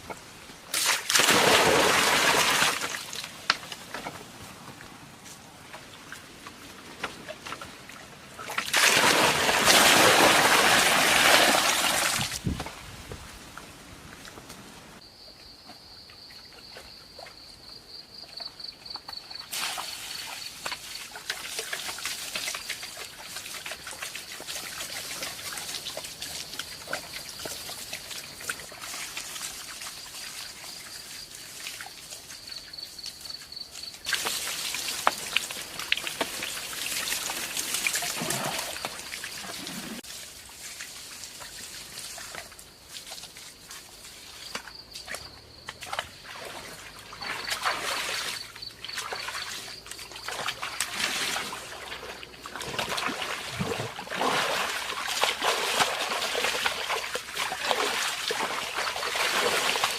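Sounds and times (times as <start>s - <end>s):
rush of pouring water: 0.8s - 3.3s, 8.5s - 12.5s, 19.5s - 32.5s, 34.0s - 44.2s, 46.4s - 59.9s.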